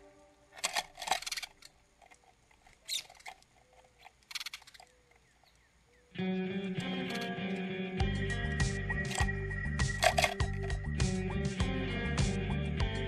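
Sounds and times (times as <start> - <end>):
small birds scratchy bursts: 0.5 - 6.0.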